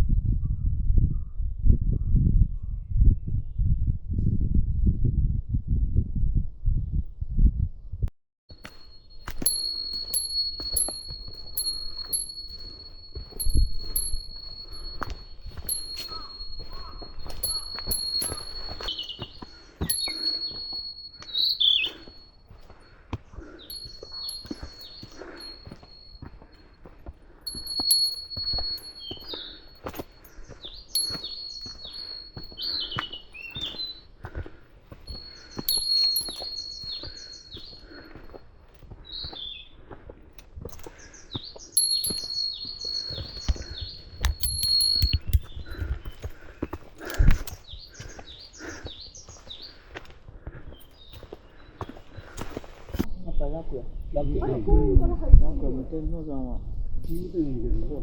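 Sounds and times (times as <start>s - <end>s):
small bell jingling: 8.5s - 39.6s, 40.7s - 49.6s, 57.0s - 57.5s
footsteps on dirt trail: 8.5s - 53.1s
birds singing: 8.8s - 40.2s, 40.8s - 54.6s.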